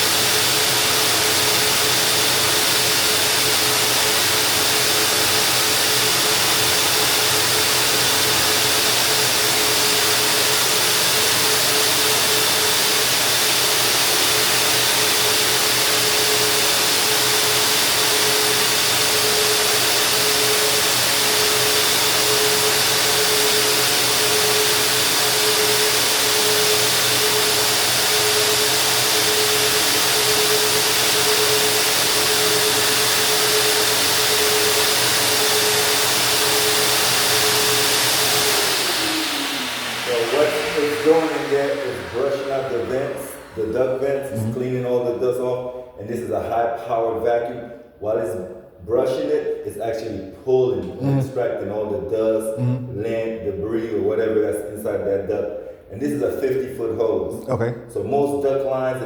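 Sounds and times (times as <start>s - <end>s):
duct-cleaning vacuum running: 0.0s - 45.5s.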